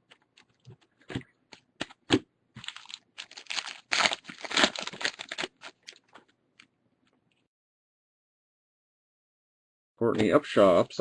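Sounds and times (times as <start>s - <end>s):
wrapper tearing and crinkling: 2.6s - 6.1s.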